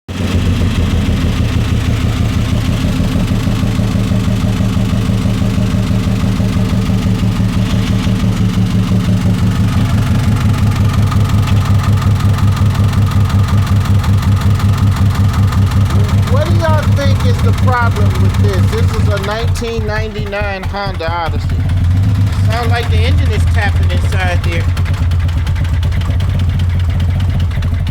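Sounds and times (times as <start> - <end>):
car engine running with tapping: 0.1 - 27.9.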